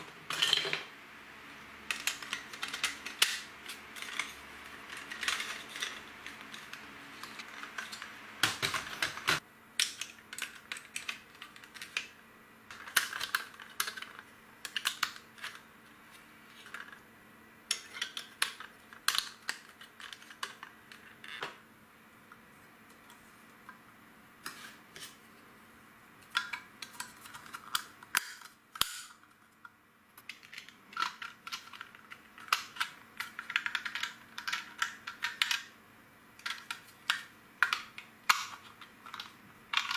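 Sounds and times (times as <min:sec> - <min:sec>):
plastic bricks clicking together: 0:01.9 - 0:12.1, 0:30.2 - 0:35.7, 0:36.4 - 0:39.9.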